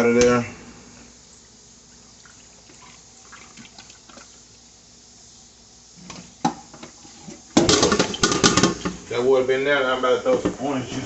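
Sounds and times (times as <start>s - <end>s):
brine trickling into bowl: 1.2s - 4.8s.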